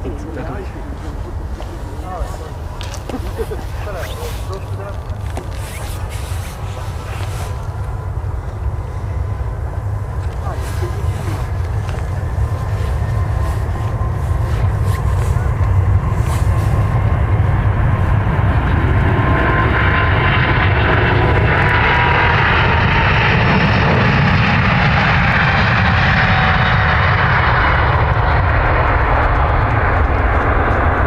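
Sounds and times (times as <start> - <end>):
jet airliner engines rumbling: 0.0 - 31.0.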